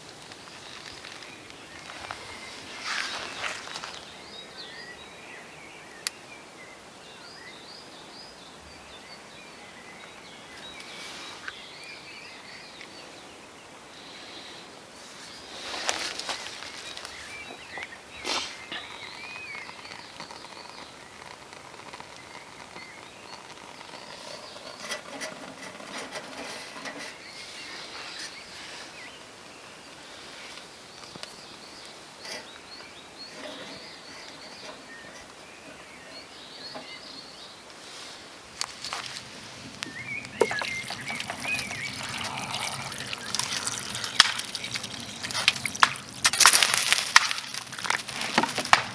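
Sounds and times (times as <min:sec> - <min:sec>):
small birds chirping: 0:30.9 - 0:48.9.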